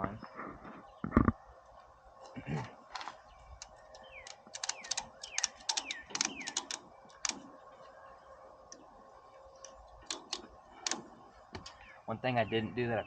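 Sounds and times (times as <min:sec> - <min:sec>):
ratchet strap clicking: 0:03.6 - 0:07.5, 0:10.0 - 0:11.8.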